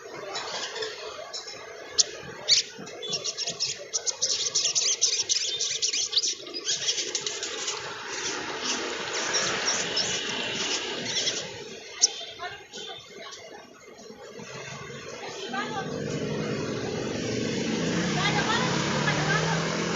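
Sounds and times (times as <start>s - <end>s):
sunbird chattering song: 1.9s - 7.6s, 8.2s - 12.4s.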